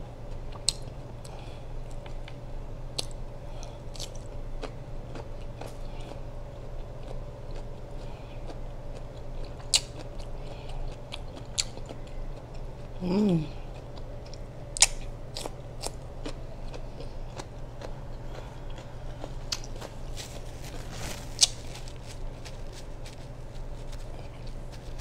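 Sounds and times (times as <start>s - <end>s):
steady low hum: 0.0s - 25.0s
person chewing with wet smacks: 0.3s - 25.0s
person humming: 12.9s - 13.7s.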